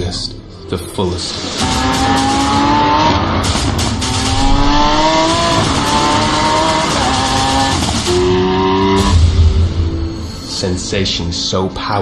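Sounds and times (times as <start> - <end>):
sports car engine accelerating: 1.4 - 9.5.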